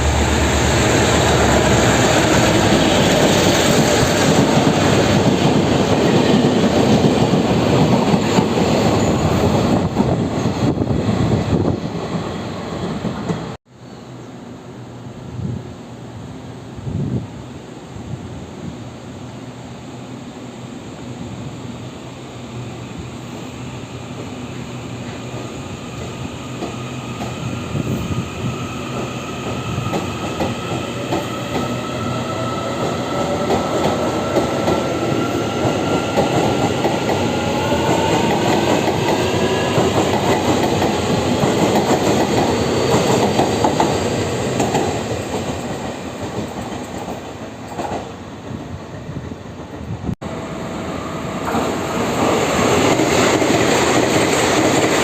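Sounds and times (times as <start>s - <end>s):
train traction motor whine: 50.2s - 53.0s.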